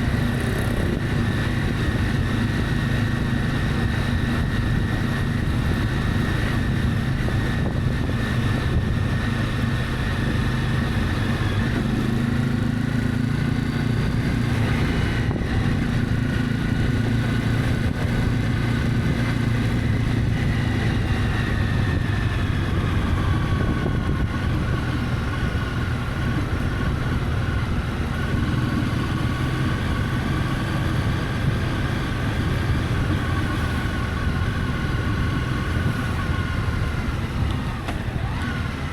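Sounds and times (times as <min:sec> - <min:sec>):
motorcycle engine running: 0:00.0 - 0:38.9
road and wind noise: 0:00.0 - 0:38.9.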